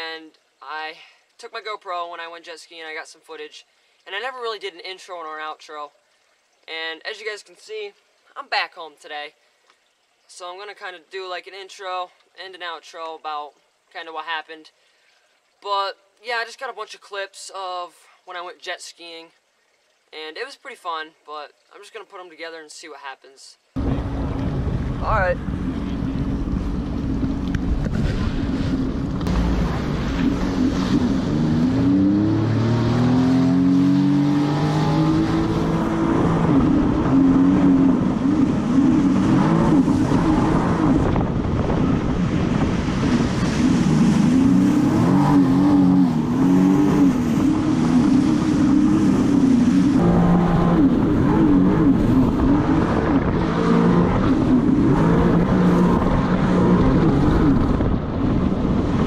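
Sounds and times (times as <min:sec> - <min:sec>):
jet ski engine running: 0:23.8 - 0:33.7, 0:34.4 - 0:59.0.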